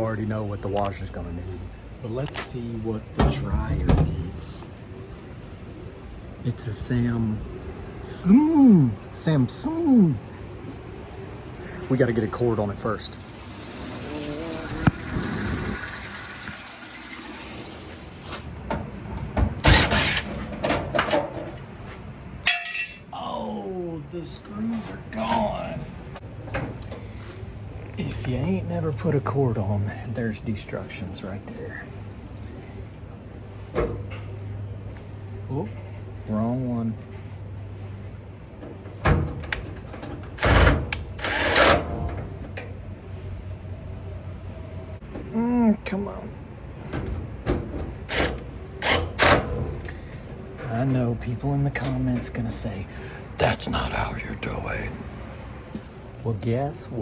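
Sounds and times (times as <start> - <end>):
cordless drill driving screws: 19.7 - 20.3, 40.4 - 41.8.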